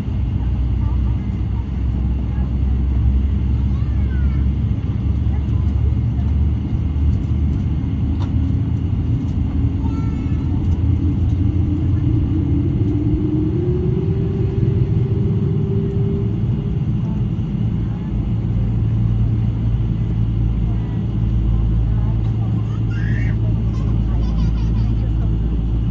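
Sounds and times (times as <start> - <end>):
jet engines rumbling in cabin: 0.0 - 25.9
rising engine tone: 10.7 - 17.3.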